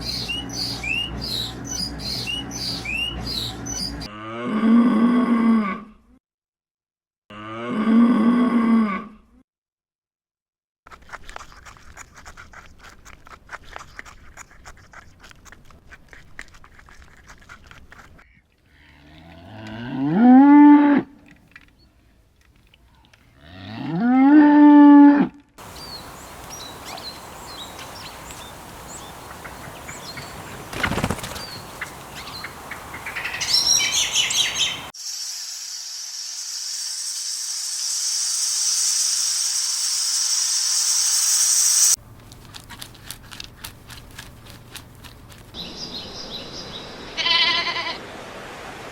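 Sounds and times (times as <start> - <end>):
cow mooing: 7.3 - 9.2, 19.0 - 21.1, 23.4 - 25.3
high steady hiss: 25.6 - 42.0.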